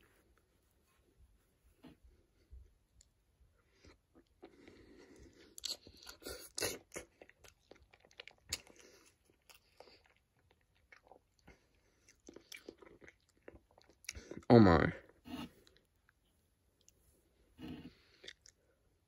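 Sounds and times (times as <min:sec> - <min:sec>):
person chewing: 0:03.7 - 0:14.5, 0:15.1 - 0:16.2, 0:16.8 - 0:18.8.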